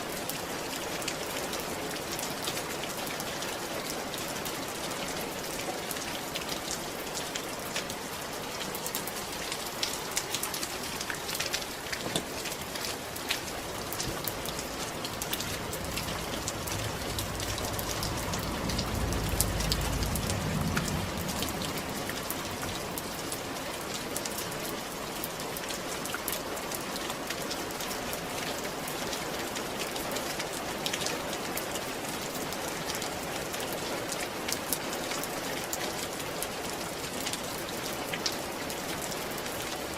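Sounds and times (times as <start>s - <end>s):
rain falling on a roof: 0.0s - 39.9s
low rumble: 13.8s - 23.4s.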